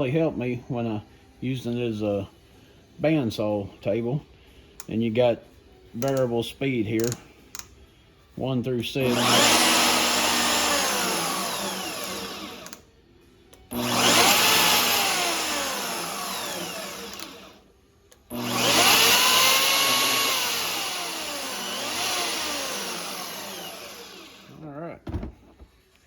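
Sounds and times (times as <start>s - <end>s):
bandsaw motor spinning up and down: 9.0s - 12.8s, 13.7s - 17.6s, 18.3s - 24.6s.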